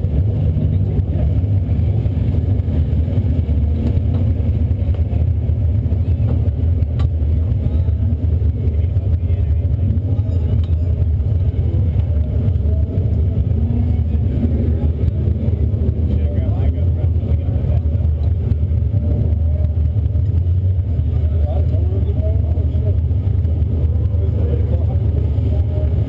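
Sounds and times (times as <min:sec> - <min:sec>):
race car engine idling: 0:00.0 - 0:26.0.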